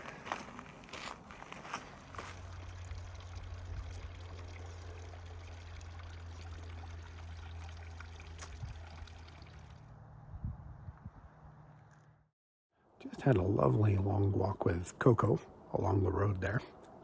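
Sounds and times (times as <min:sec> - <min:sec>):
low hum: 0:01.8 - 0:12.3
running water: 0:02.2 - 0:09.9.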